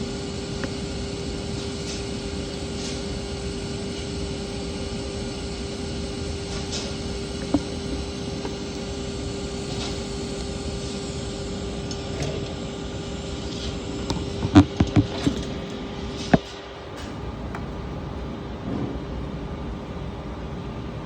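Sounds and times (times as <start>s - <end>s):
welding arc hissing: 0.0s - 16.5s
sharp clicks and knocks: 13.5s - 17.7s.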